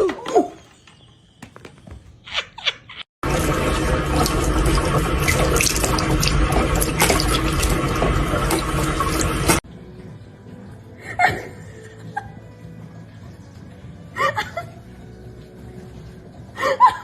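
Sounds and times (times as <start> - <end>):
running water rushing: 3.2 - 9.6.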